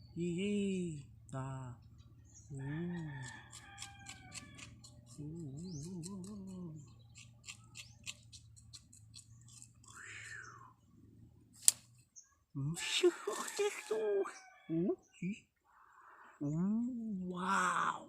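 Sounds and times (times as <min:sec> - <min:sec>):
closed-mouth hum: 0:05.1 - 0:07.7, 0:16.4 - 0:18.0.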